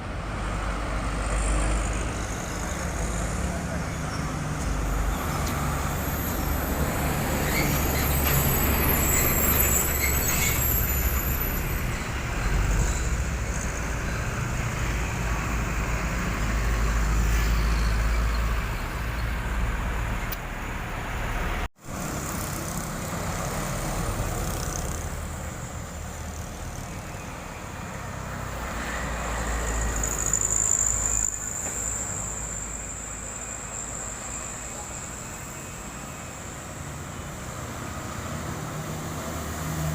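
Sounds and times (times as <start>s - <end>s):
truck diesel engines under load: 0.0s - 39.9s
high steady squeal: 1.2s - 19.4s, 24.4s - 37.0s.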